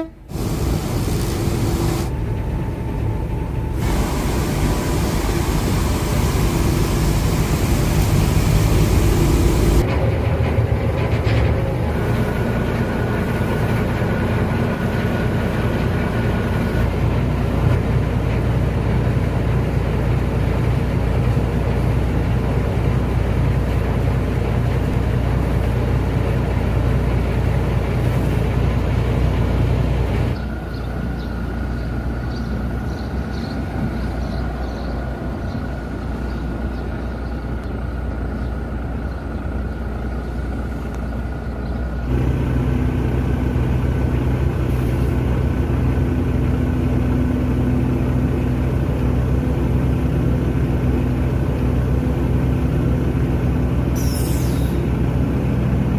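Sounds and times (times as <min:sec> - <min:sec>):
boat engine droning: 0:00.0 - 0:55.9.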